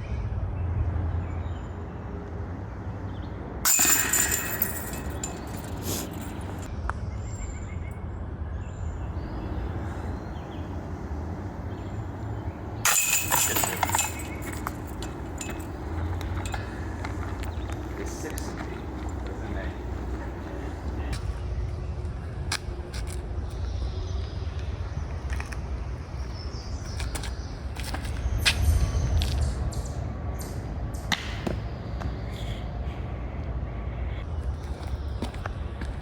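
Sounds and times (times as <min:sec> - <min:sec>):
discs hitting metal chains: 0:03.6 - 0:06.7, 0:12.8 - 0:17.3.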